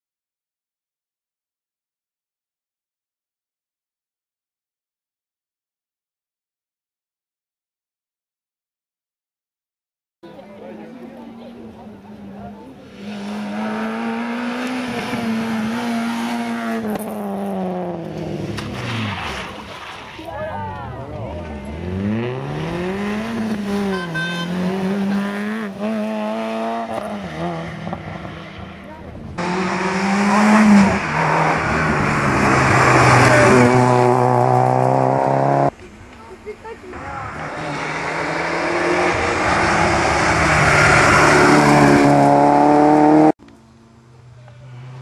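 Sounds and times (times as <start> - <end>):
rally car engine at high revs: 12.8 - 19.9, 21.4 - 28.8, 29.4 - 35.8, 37.3 - 43.3.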